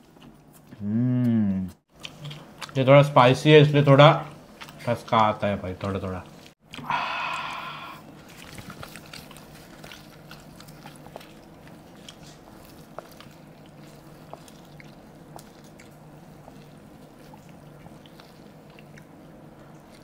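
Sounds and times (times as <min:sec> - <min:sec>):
biting and chewing food: 0:01.9 - 0:03.1, 0:03.8 - 0:20.0.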